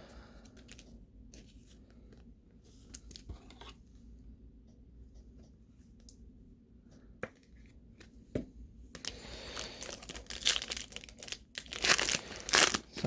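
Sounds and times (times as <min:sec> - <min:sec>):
plastic wrapper tearing and crinkling: 0:09.0 - 0:13.0.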